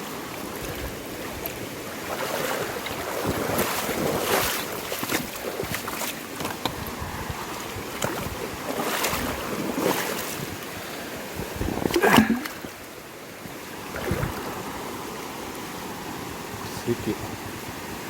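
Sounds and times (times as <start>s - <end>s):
water sloshing and splashing: 0.0s - 16.6s
wind buffeting microphone: 2.6s - 12.8s, 13.9s - 14.9s.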